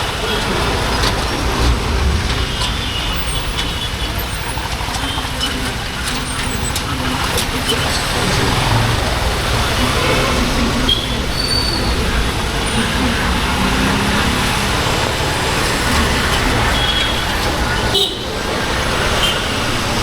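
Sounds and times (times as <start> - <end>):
wind rush on microphone: 0.0 - 5.2
road traffic: 0.0 - 20.0
motorcycle engine running: 0.3 - 20.0.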